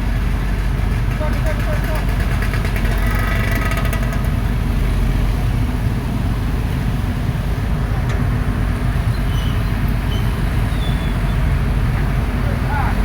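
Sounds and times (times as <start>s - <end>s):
excavator diesel engine running: 0.0s - 13.0s
light rapid clattering: 0.4s - 4.5s.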